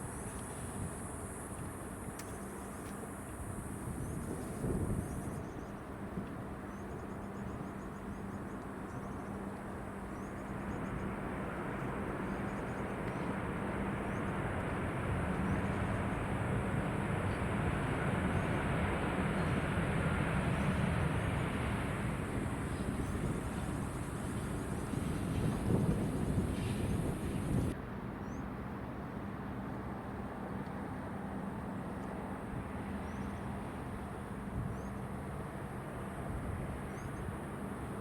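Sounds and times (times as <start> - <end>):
jet engines rumbling: 10.8 - 27.8.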